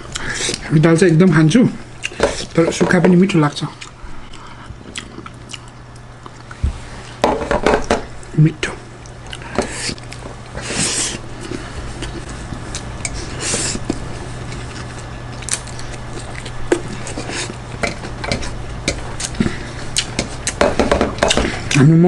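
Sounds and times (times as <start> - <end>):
steady low hum: 0.0 - 22.0
person chewing food: 3.7 - 7.2, 9.0 - 20.6.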